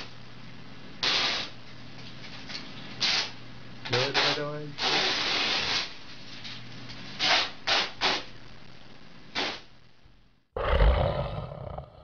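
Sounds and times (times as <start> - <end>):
short hissing bursts: 1.0 - 1.6, 4.1 - 6.0
loud low animal call: 10.6 - 12.0.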